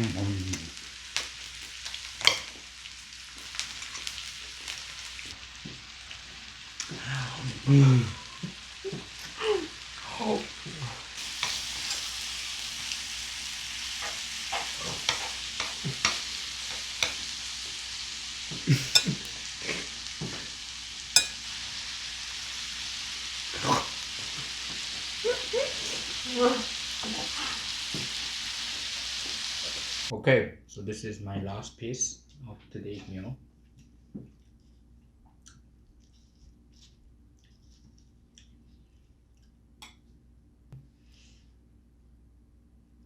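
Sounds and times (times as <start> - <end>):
food sizzling in a hot pan: 0.0 - 30.1.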